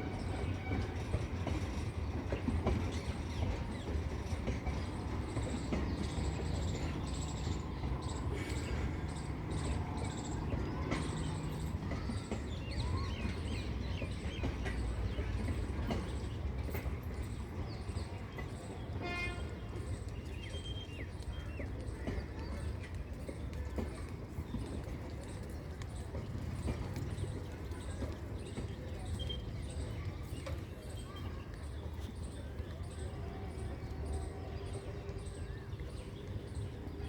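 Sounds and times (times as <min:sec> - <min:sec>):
train wagons rumbling past: 0:00.0 - 0:37.0.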